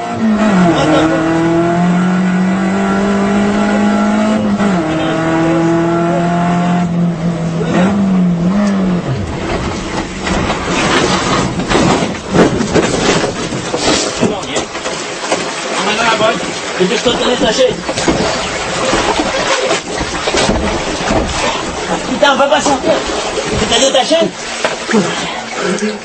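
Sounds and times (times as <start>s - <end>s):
race car engine running: 0.0s - 15.7s
crashing and splashing: 7.8s - 26.0s
hard knocks: 9.0s - 22.1s.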